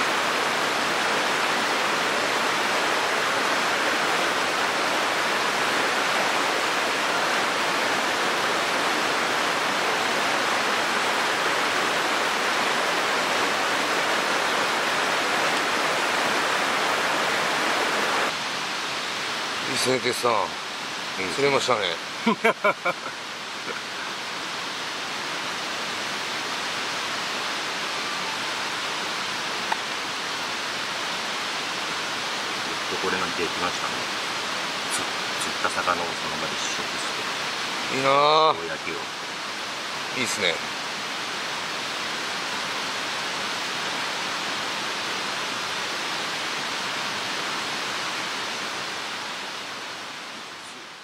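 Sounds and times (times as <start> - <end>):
stream water rushing: 0.0 - 51.0.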